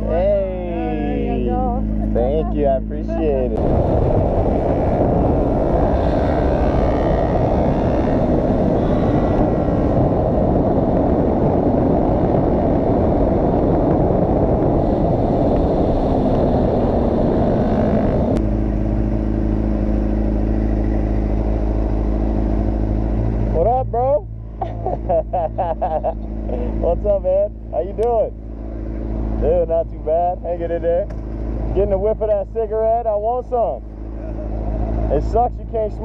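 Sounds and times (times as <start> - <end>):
motorcycle engine: 0.0 - 35.7
wind noise on microphone: 1.6 - 23.7.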